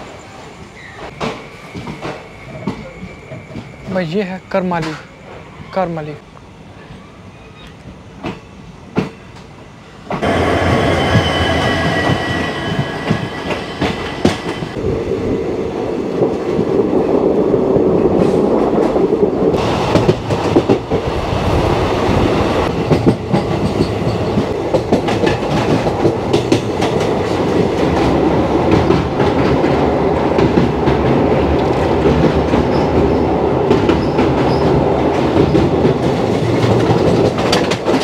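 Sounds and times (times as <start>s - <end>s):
train wheels rumbling on rails: 0.0s - 5.4s, 7.6s - 38.0s
rail joint clacks: 10.1s - 14.8s, 22.6s - 38.0s.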